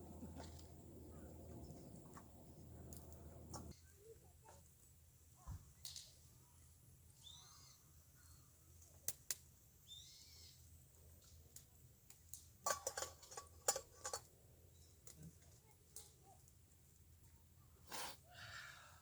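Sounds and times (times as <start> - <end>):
faint high bird call: 7.2 - 8.4.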